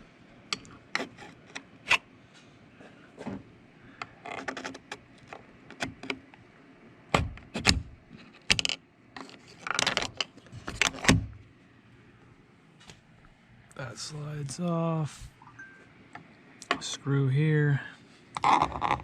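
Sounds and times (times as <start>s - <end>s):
door lock parts clicking: 9.6s - 11.3s.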